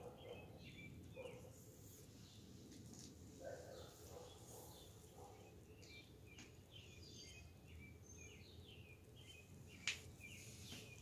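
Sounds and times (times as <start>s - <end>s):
low outdoor hum: 0.0s - 11.0s
songbirds chirping and twittering: 0.0s - 11.0s.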